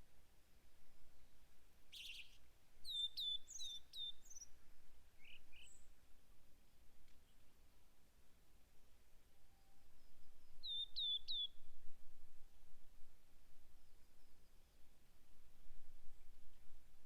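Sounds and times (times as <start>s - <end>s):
songbirds chirping: 0.9s - 11.7s.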